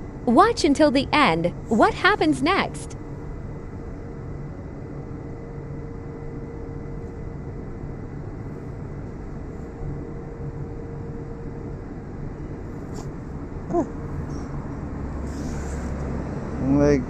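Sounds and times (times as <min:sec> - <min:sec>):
constant hum: 0:00.0 - 0:17.0
machinery or traffic rumble: 0:00.0 - 0:17.0.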